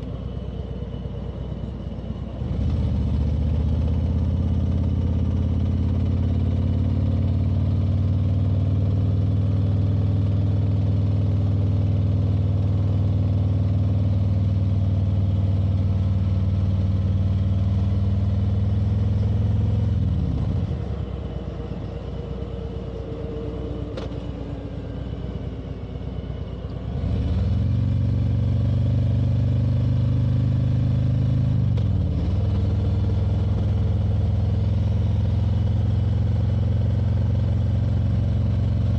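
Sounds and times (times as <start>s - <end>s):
motorcycle engine running: 26.8s - 38.9s.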